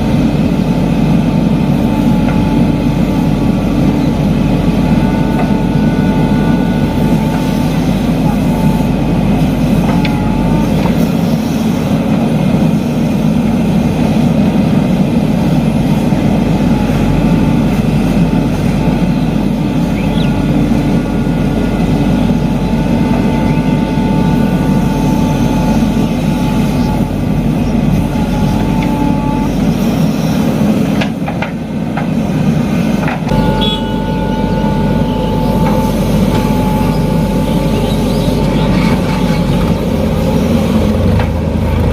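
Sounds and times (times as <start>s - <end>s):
heavy machinery diesel engines: 0.0s - 41.9s
thin high whine: 33.3s - 38.2s.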